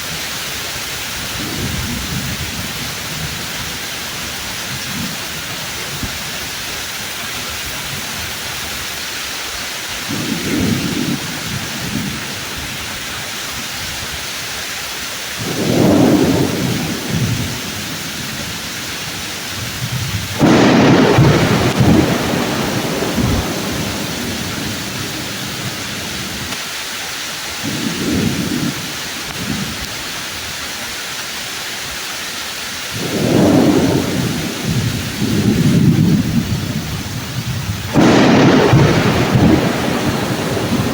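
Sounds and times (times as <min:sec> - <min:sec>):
thunder rumbling: 0:00.0 - 0:08.7, 0:10.0 - 0:13.7, 0:15.3 - 0:26.6, 0:27.6 - 0:30.2, 0:32.9 - 0:40.9
rain falling on leaves: 0:00.0 - 0:40.9
sharp thunder crack: 0:10.1 - 0:12.6, 0:15.4 - 0:26.6, 0:27.6 - 0:29.8, 0:33.0 - 0:40.9.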